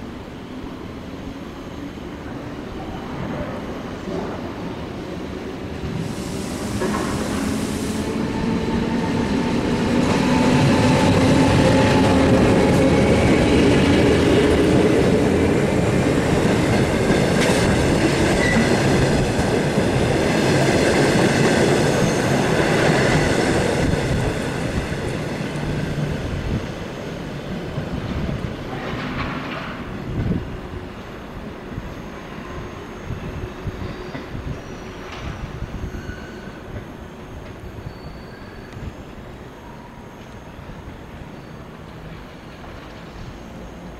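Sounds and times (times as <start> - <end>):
train wheels rumbling on rails: 4.1 - 31.9.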